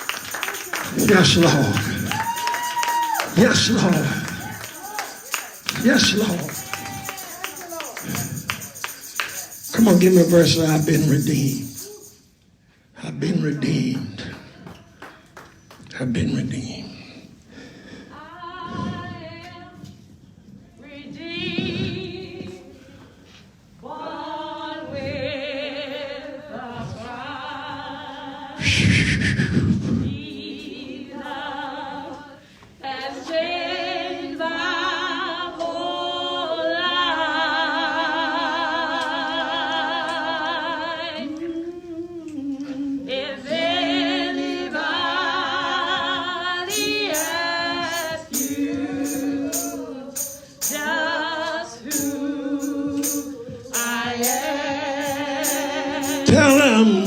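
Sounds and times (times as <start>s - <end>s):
gospel choir singing a hymn: 0.0s - 12.1s, 20.8s - 23.0s, 23.8s - 57.0s
percussive strikes: 46.7s - 50.9s, 51.9s - 57.0s.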